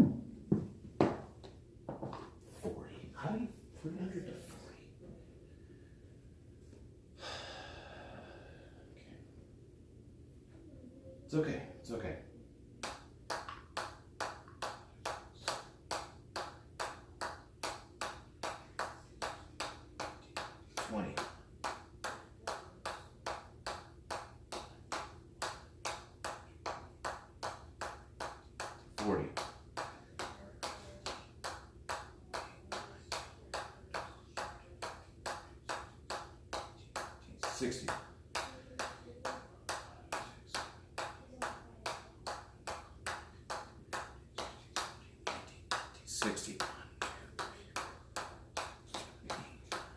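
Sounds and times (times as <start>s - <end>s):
ball bouncing on hammer: 12.8s - 49.9s.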